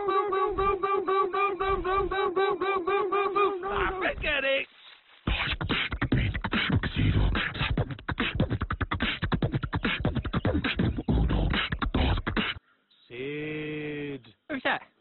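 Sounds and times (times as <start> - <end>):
person beatboxing: 0.0 - 4.2, 5.3 - 12.6.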